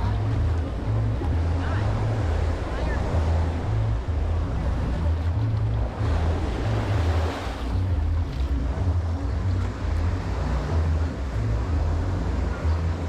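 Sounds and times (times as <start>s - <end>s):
surf washing onto beach: 0.0s - 8.6s
wind buffeting microphone: 0.0s - 13.0s.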